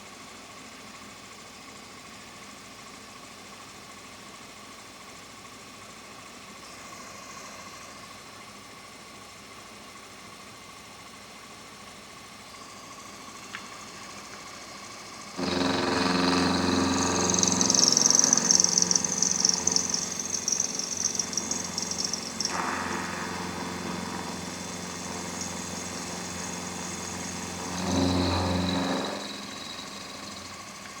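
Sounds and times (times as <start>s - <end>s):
machine motor humming: 12.7s - 31.0s
high whine of tool cutting metal: 12.9s - 31.0s.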